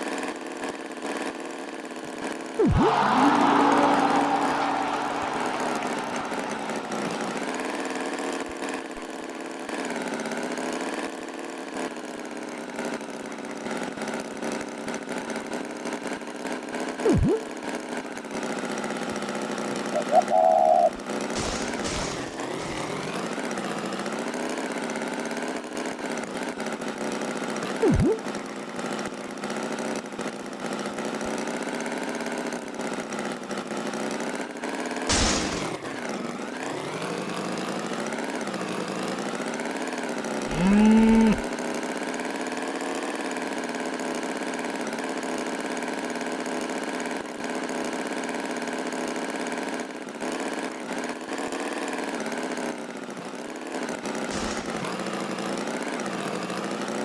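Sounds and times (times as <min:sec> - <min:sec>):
short sudden noises: 0:02.6 - 0:07.6, 0:20.0 - 0:23.3, 0:35.1 - 0:36.1, 0:54.3 - 0:55.2
cow mooing: 0:40.5 - 0:41.4.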